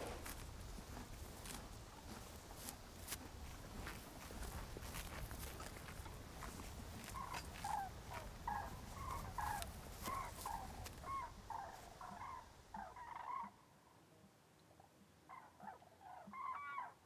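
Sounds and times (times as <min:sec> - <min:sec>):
flock of birds calling: 0:07.1 - 0:13.6.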